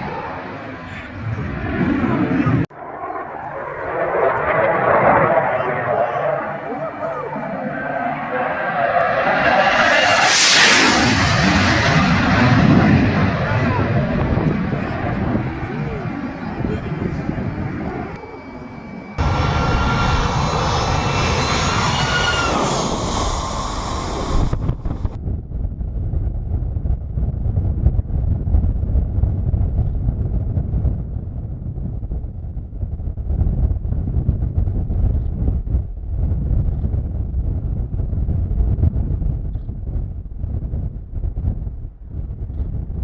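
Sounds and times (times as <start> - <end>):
airplane engine whine passing: 0.0 - 25.2
aircraft engine rumble: 0.0 - 43.0
wind on microphone: 9.1 - 18.2, 19.2 - 43.0.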